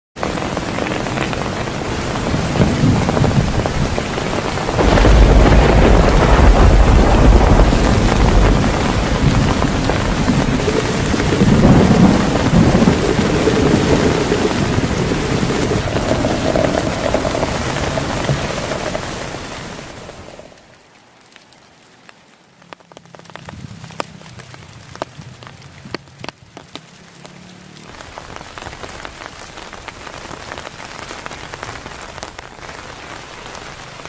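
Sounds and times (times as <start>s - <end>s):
thunder rumbling: 0.2s - 20.5s
heavy rain falling: 0.2s - 34.0s.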